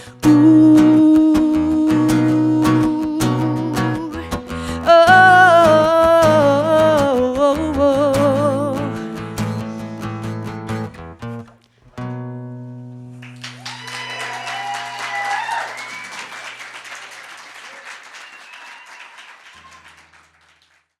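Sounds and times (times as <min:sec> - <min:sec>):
guitar chords ringing: 0:00.0 - 0:13.3
audience applause: 0:13.2 - 0:21.0.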